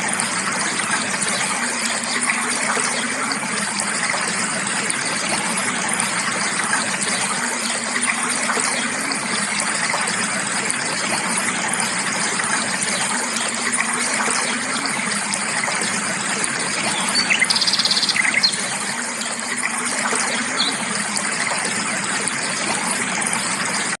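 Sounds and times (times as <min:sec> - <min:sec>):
creek water rushing: 0:00.0 - 0:24.0
birds chirping: 0:16.7 - 0:19.2, 0:20.2 - 0:21.0.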